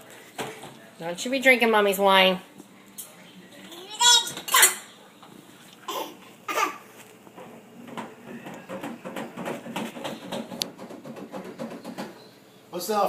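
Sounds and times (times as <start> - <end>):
items clicking and rattling: 7.3 - 12.2.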